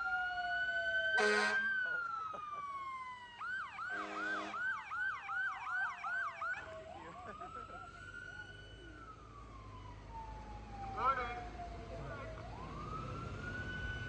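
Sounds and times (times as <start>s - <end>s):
fire truck siren: 0.0s - 14.0s
horn blast: 1.2s - 1.7s, 3.9s - 4.6s.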